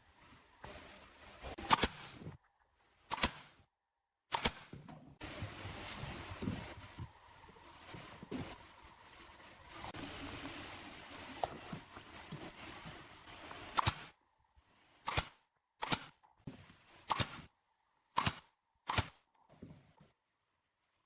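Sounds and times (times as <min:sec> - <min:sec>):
steady hiss: 0:00.0 - 0:02.4, 0:04.4 - 0:17.6
hammer striking nails into wood: 0:18.2 - 0:19.2.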